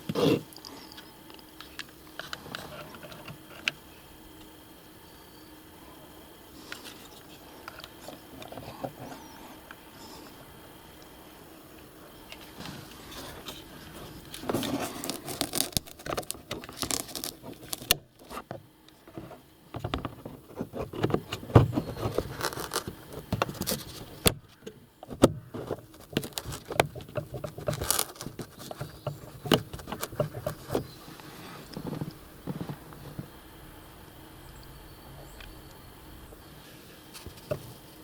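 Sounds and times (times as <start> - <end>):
plastic trim clicks and scrapes: 14.3 - 18.5, 19.8 - 30.9.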